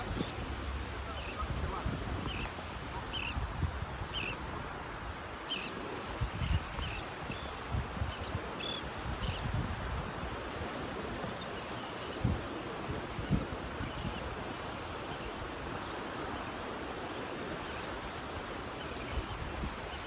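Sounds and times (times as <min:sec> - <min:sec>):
wind buffeting microphone: 0:00.0 - 0:04.6
surf: 0:00.0 - 0:20.0.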